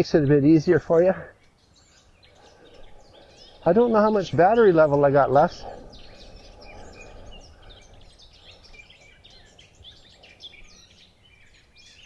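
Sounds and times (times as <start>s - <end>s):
low wind rumble: 0.0s - 12.0s
small birds chirping: 0.0s - 12.0s.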